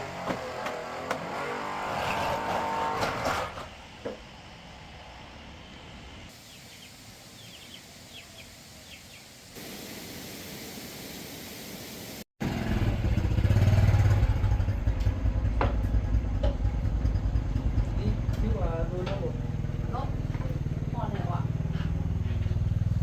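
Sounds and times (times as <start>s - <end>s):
loud low vehicle engine running: 12.4s - 23.0s.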